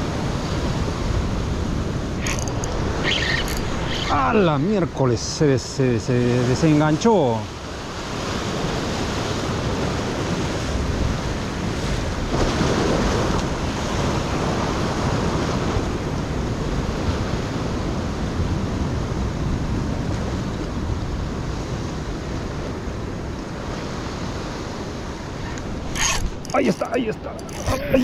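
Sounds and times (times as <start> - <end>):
ocean surf breaking: 0.0 - 20.4
wind on microphone: 7.8 - 26.6.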